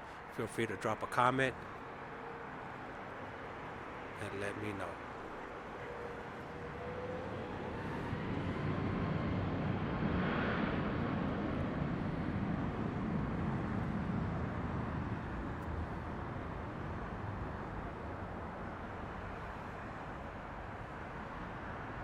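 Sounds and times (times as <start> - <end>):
distant jet engines rushing: 3.4 - 17.9.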